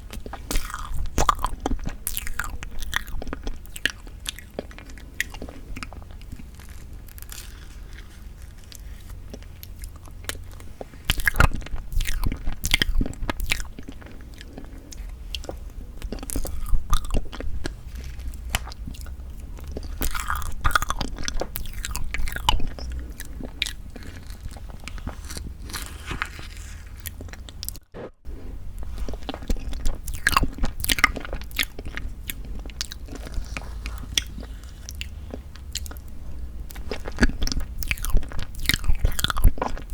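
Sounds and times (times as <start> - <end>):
moist chewing and mouth smacks: 28.8 - 36.1.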